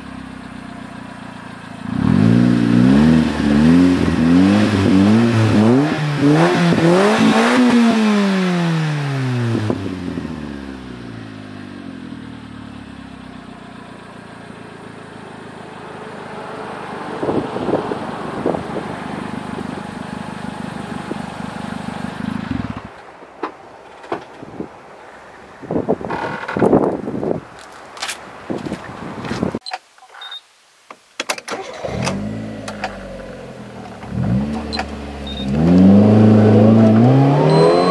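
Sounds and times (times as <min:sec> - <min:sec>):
car engine revving and idling: 0:00.0 - 0:23.0, 0:31.8 - 0:37.9.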